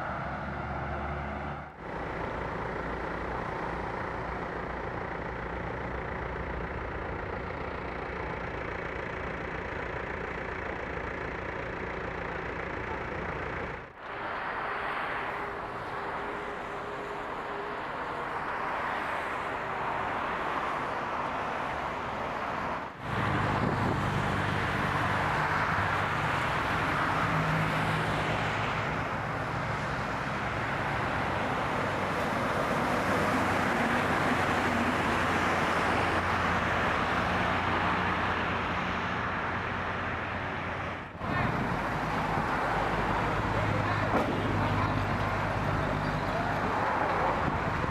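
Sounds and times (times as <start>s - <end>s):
roadside traffic: 0.0s - 47.9s
vehicle engine running: 1.8s - 18.4s.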